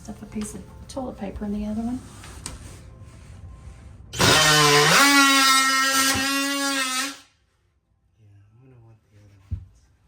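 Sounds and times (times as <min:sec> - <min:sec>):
power tool motor whine: 0:04.2 - 0:07.2.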